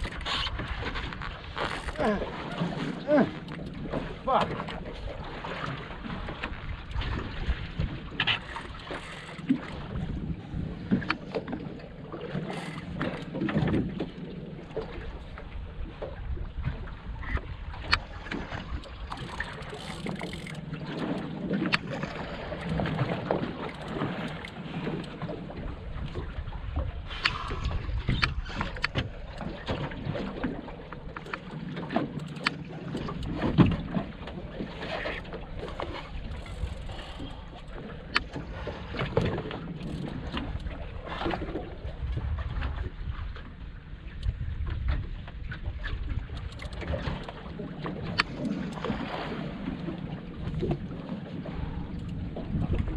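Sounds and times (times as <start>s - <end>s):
water against boat hull: 0.0s - 52.9s
wind buffeting microphone: 0.0s - 52.9s.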